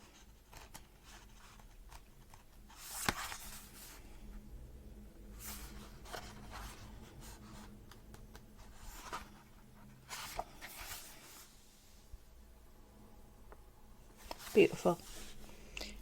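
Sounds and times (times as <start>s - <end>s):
book pages turning: 0.0s - 4.1s, 5.4s - 11.5s, 14.2s - 15.5s.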